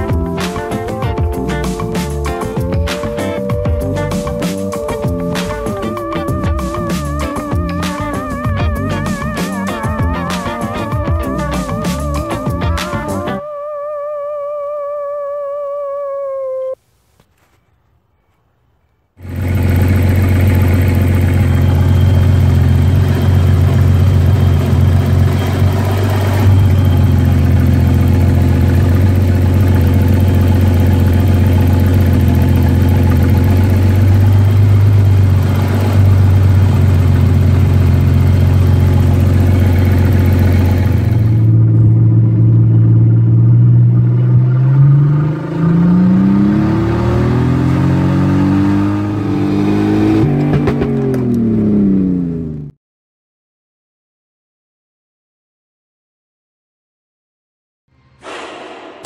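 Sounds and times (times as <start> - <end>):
car engine running: 0.0 - 13.4, 19.2 - 52.7.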